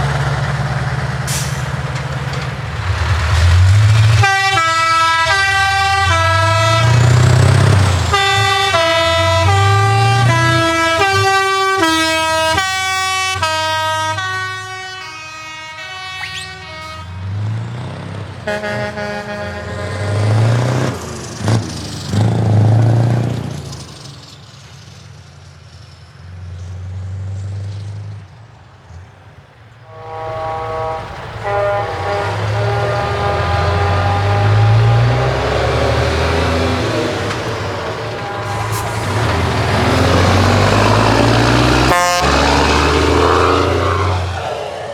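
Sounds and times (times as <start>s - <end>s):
truck engine rumble: 0.0s - 44.9s
musical air horn playing a tune: 4.2s - 7.2s, 8.1s - 17.2s, 18.5s - 20.0s, 29.9s - 36.4s, 38.1s - 44.2s.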